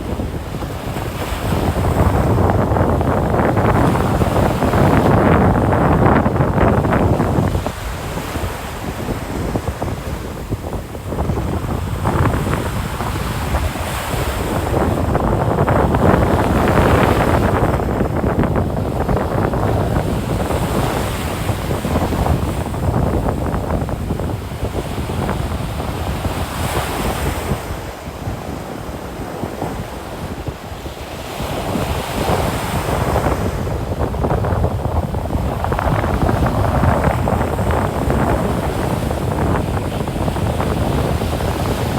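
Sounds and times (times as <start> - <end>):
ocean surf breaking: 0.0 - 41.9
wind rumbling on microphone: 0.0 - 41.9.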